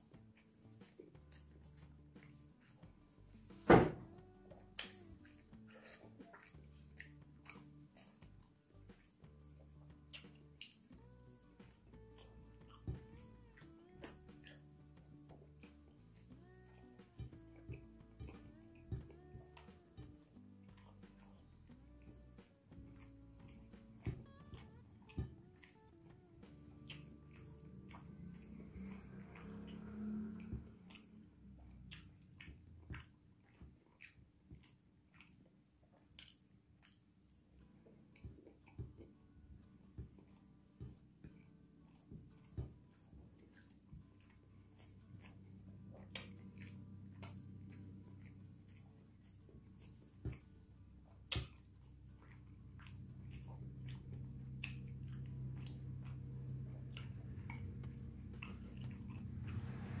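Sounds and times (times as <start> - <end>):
low steady hum: 0.0 - 35.9, 36.8 - 60.0
person chewing food: 0.0 - 60.0
wet mouth clicks and smacks: 4.7 - 11.0, 31.8 - 37.5, 46.0 - 50.5, 51.2 - 60.0.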